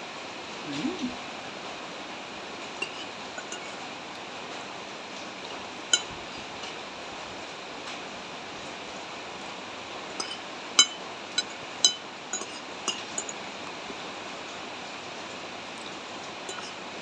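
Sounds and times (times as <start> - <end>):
spoon clinking on bowl: 2.8 - 3.8, 5.9 - 6.2, 10.1 - 13.5, 15.8 - 16.8.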